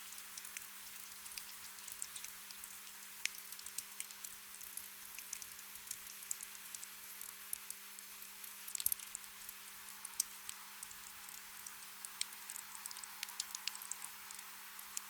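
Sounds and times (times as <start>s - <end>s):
raindrops ticking: 0.1s - 9.3s, 9.9s - 15.0s
rain hiss: 8.5s - 15.0s.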